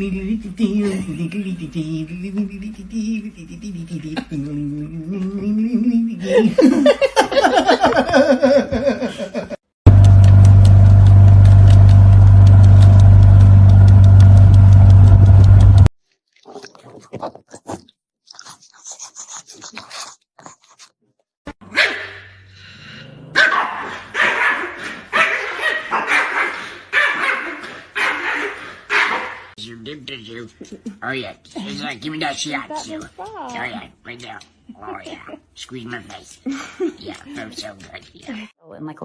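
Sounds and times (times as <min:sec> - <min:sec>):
loud steady droning: 0:09.9 - 0:15.9
dog barking: 0:21.7 - 0:22.4, 0:23.4 - 0:29.5.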